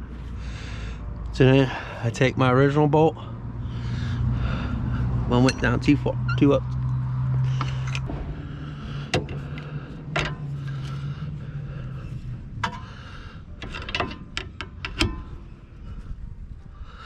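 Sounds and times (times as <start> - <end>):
low hum: 3.2 - 17.0
metallic clicks and knocks of tools: 9.1 - 10.9, 13.6 - 15.4.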